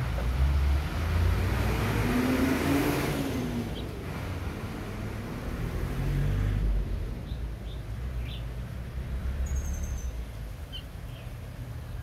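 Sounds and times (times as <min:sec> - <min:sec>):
small birds chirping: 0:03.6 - 0:04.0, 0:07.1 - 0:12.0.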